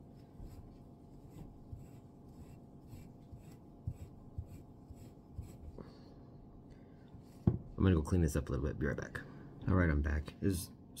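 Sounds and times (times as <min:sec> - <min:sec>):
soft knocks: 0:07.4 - 0:07.7.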